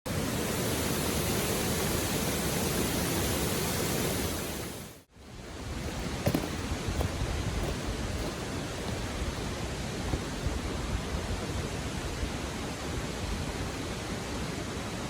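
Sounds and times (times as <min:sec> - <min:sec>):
river rushing over stones: 0:04.6 - 0:15.0.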